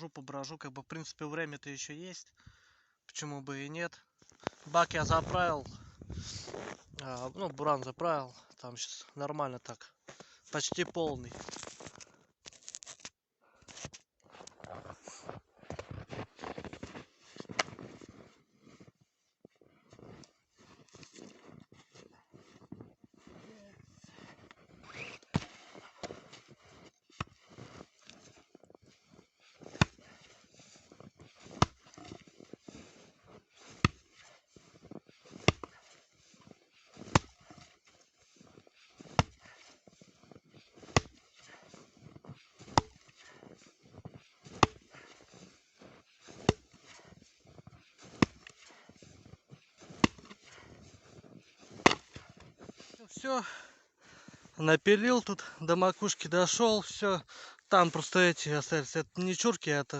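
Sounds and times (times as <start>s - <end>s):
axe chopping wood: 25.3s - 26.2s, 29.6s - 30.2s, 31.4s - 32.2s, 33.7s - 34.2s, 35.3s - 35.8s, 37.0s - 37.6s, 39.0s - 39.6s, 40.8s - 41.2s, 42.6s - 43.2s, 44.4s - 45.0s, 46.3s - 47.0s, 48.0s - 48.6s, 49.8s - 50.5s, 51.7s - 52.4s.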